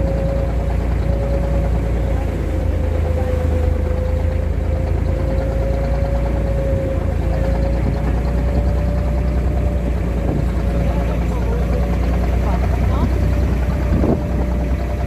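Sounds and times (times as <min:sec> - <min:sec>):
engine running with whine: 0:00.0 - 0:15.0.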